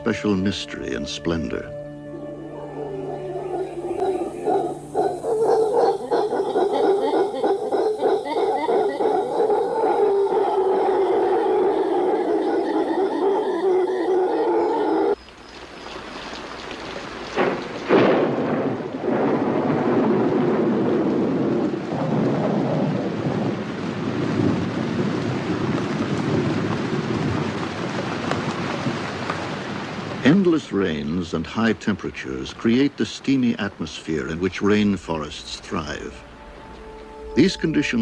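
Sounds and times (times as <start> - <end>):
heavy rain falling: 14.8 - 38.0
thunder claps: 17.0 - 36.3.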